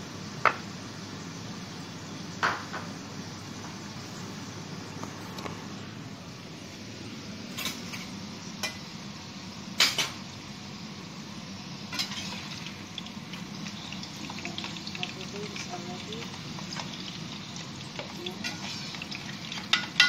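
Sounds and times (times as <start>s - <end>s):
chips sizzling in oil: 6.4s - 20.0s
plates and cutlery clinking: 7.5s - 8.8s, 9.8s - 10.2s, 18.0s - 20.0s.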